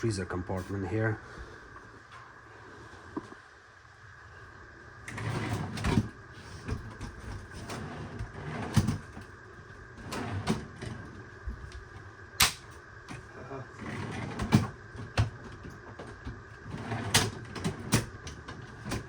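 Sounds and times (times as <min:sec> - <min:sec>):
rails sliding and scraping: 0:05.0 - 0:12.1, 0:13.1 - 0:19.0.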